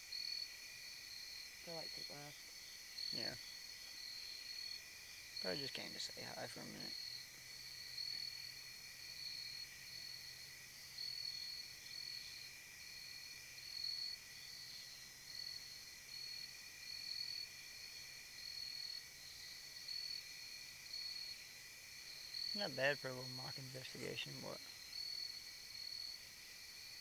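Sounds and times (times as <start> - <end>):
insects chirping: 0.0 - 27.0
low steady insect drone: 0.0 - 27.0.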